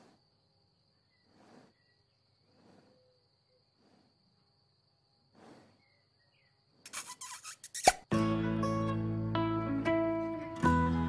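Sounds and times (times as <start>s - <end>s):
soft breathy puffs: 0.0s - 0.4s, 1.1s - 4.4s, 5.3s - 6.0s.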